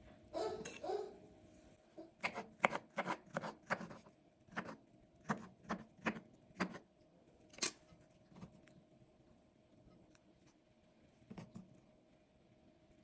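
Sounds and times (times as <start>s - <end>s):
knife chopping on cutting board: 2.2s - 6.8s.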